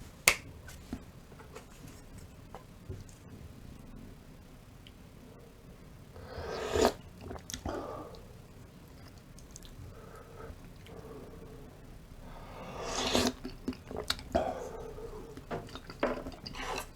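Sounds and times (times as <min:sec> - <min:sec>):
chewing noises: 0:08.9 - 0:09.8, 0:13.0 - 0:14.5.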